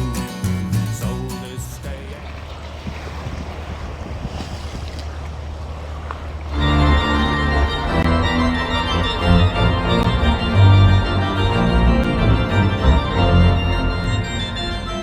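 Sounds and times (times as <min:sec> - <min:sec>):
wind and water noise: 0:00.0 - 0:15.0
organ playing sustained chords: 0:06.5 - 0:15.0.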